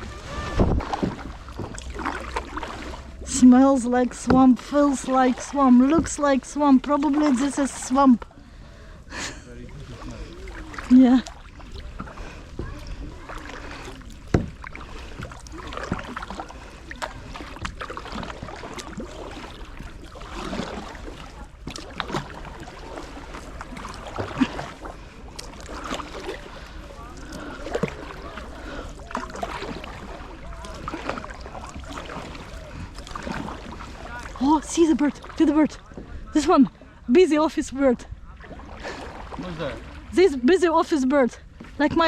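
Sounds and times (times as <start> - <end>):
paddle dipping and dripping: 0.0 - 42.0
paddle knocking against kayak: 0.4 - 3.0, 4.0 - 8.3, 9.9 - 36.3.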